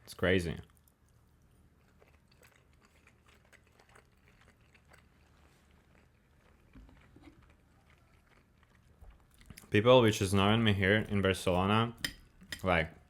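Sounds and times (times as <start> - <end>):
person chewing: 0.6 - 9.7.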